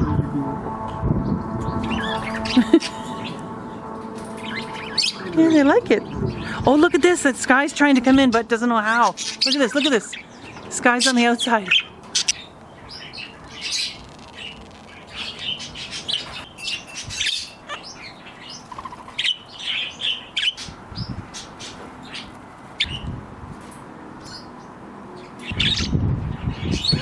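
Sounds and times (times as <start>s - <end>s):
wind rumble on microphone: 0.0s - 3.4s, 4.6s - 8.4s, 20.6s - 21.5s, 22.8s - 23.7s, 25.4s - 27.0s
parrots chirping and squawking: 1.8s - 3.6s, 4.2s - 7.0s, 8.3s - 23.0s, 25.2s - 25.9s, 26.5s - 27.0s.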